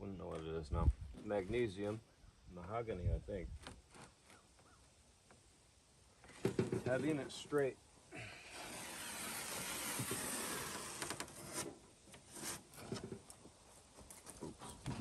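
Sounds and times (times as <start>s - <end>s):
scraping along foam board: 8.4s - 13.1s.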